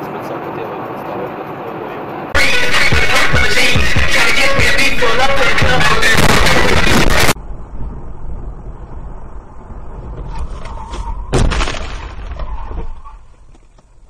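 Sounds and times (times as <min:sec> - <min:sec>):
vehicle driving rumble: 0:00.0 - 0:14.0
loud music: 0:02.4 - 0:07.4
vehicle collision bang: 0:10.0 - 0:13.2.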